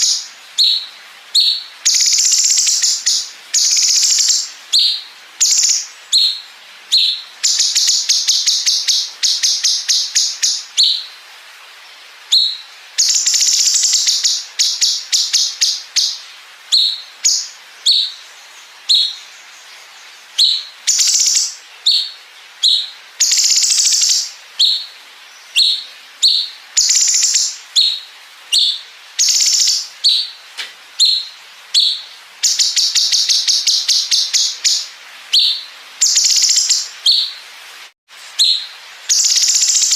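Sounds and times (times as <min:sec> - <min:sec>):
songbird singing with fast trills: 0:00.0 - 0:11.2, 0:11.9 - 0:37.4, 0:38.2 - 0:39.9.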